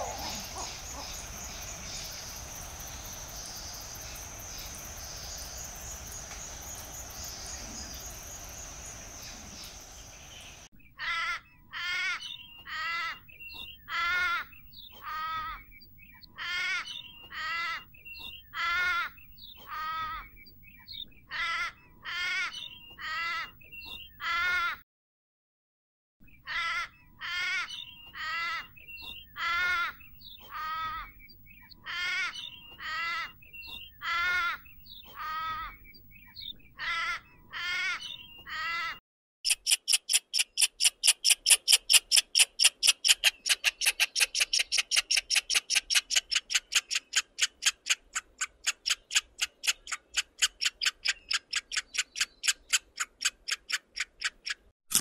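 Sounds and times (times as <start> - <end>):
harsh squawking animal calls: 0.0 - 1.6, 36.8 - 39.0
squirrel chattering chirps: 39.5 - 55.0.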